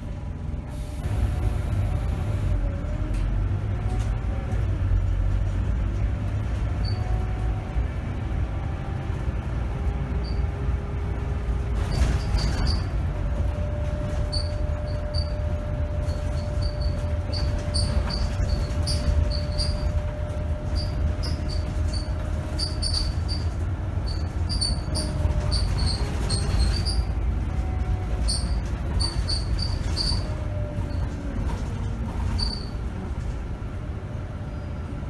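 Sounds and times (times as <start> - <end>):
bus engine and road rumble: 0.0 - 35.0
thin steady whine: 0.7 - 2.6
bus body squeaks and rattles: 0.7 - 35.0.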